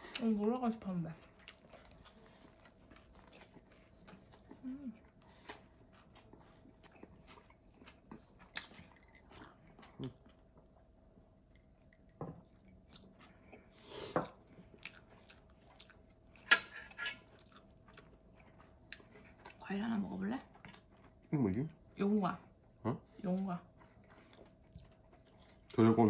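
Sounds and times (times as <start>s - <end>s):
chewing crusty bread: 0.0s - 26.0s.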